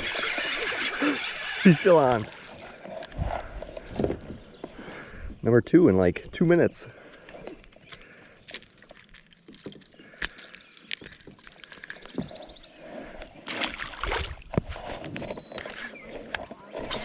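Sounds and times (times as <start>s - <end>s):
water sloshing and splashing: 0.0s - 5.3s, 6.9s - 17.0s.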